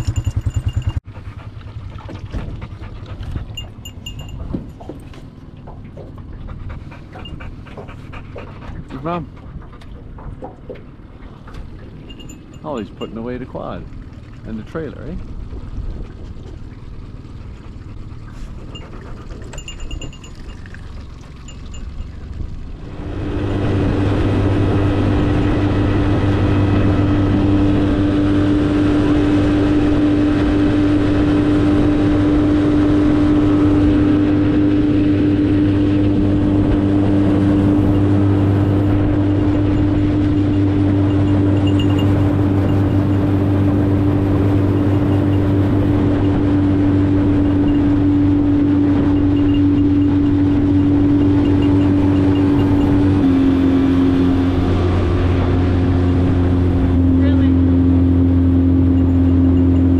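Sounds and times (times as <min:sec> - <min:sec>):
outboard motor humming: 0:00.0 - 0:59.9
noisy background: 0:33.8 - 0:59.9.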